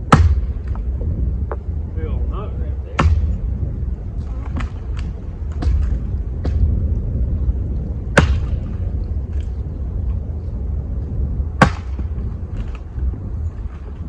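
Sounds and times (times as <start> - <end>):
wind rumbling on microphone: 0.0 - 14.0
sharp knocks: 3.0 - 3.4, 8.1 - 8.7.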